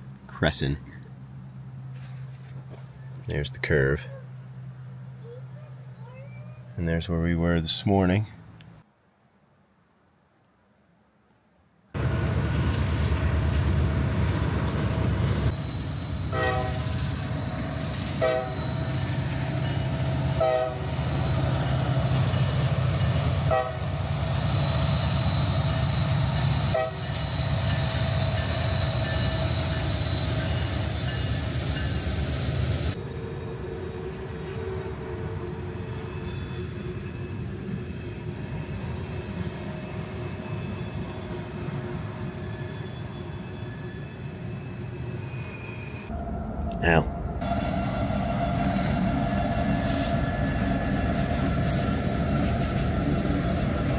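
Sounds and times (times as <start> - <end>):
wheels squealing: 39.5 - 46.4.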